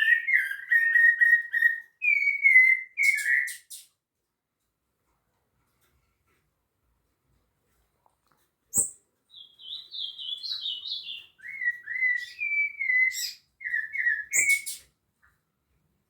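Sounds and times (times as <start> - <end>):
thrush whistled song: 0.0 - 3.8, 8.8 - 14.9.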